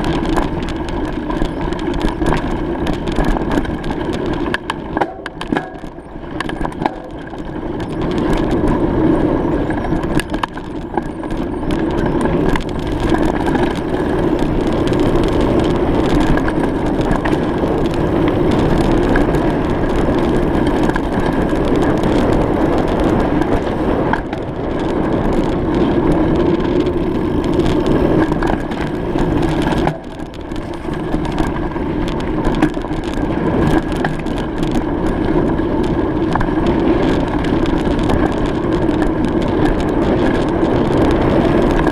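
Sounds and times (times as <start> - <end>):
bicycle tyre noise: 0.0 - 41.9
small crackles and knocks: 0.0 - 41.9
wind noise on microphone: 0.0 - 41.9.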